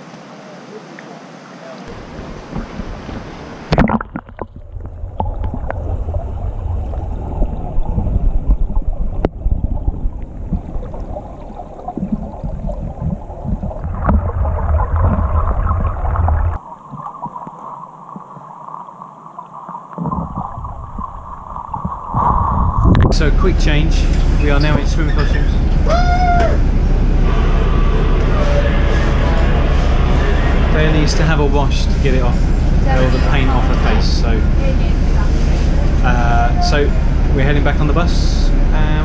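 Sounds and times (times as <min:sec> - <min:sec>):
river water rushing: 0:00.0 - 0:04.2
wind rumble on microphone: 0:01.9 - 0:16.6, 0:20.0 - 0:39.0.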